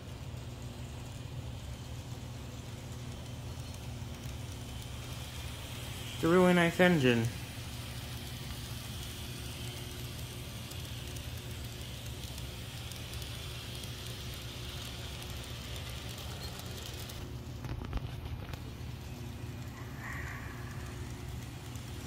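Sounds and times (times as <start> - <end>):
model train motor hum: 0.0 - 22.0
small clicks: 7.7 - 22.0.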